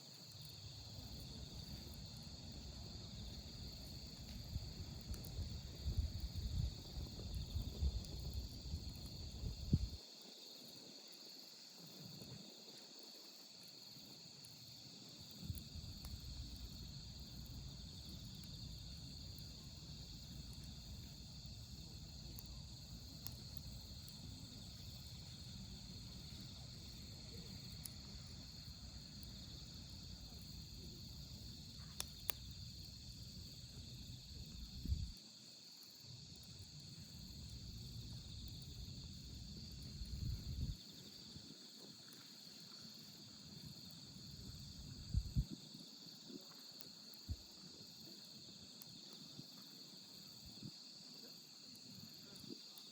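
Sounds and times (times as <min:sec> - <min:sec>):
crickets chirping: 0:00.0 - 0:52.9
wood fire rumbling and popping: 0:02.5 - 0:10.0.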